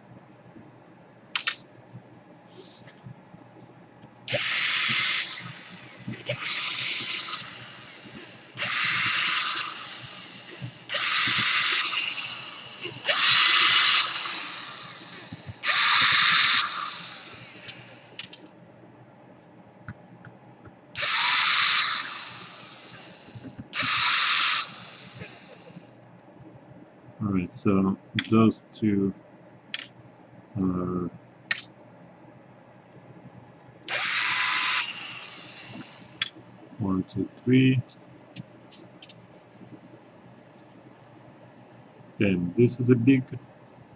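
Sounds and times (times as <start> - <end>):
electric screwdriver running: 4.3 - 7.5, 8.6 - 12.4, 13.0 - 17.8, 21.0 - 22.7, 23.8 - 24.8, 33.9 - 36.0.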